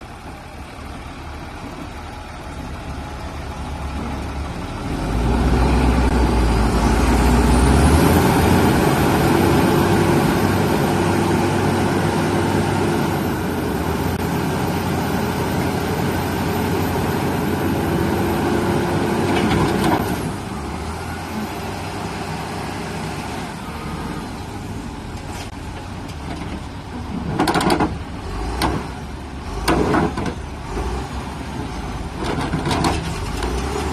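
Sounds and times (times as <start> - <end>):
truck engine revving with whine: 4.7 - 24.7.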